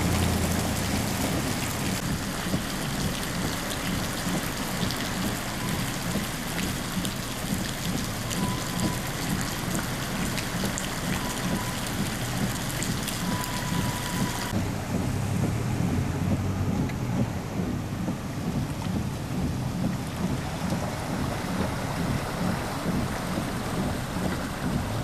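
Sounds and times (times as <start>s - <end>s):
heavy rain falling: 0.0s - 25.0s
low rumble: 0.0s - 25.0s.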